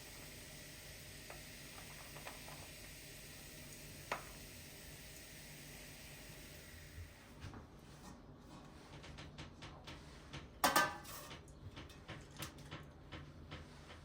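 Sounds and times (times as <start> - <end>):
dishes and utensils clinking: 10.6 - 12.6
dishes clattering: 10.6 - 12.8.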